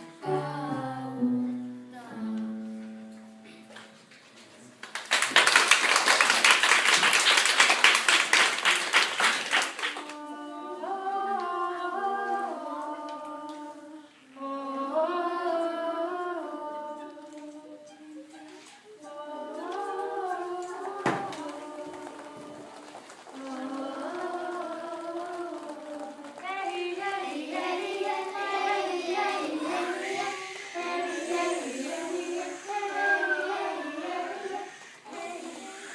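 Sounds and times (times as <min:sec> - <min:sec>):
voices singing sliding notes: 0:00.0 - 0:02.7, 0:10.0 - 0:35.9
applause: 0:04.8 - 0:10.2, 0:21.3 - 0:27.2.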